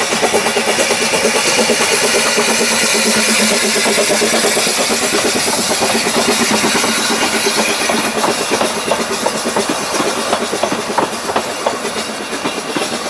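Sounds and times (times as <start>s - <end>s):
steady steam hiss: 0.0s - 13.0s
train wheels clicking over rail joints: 0.0s - 13.0s.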